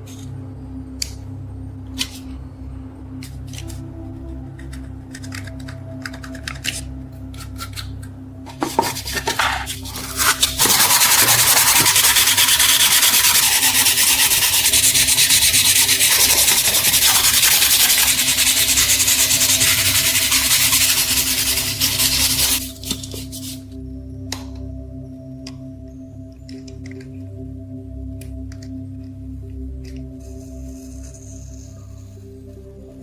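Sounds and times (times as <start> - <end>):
sanding a knife: 8.6 - 23.6.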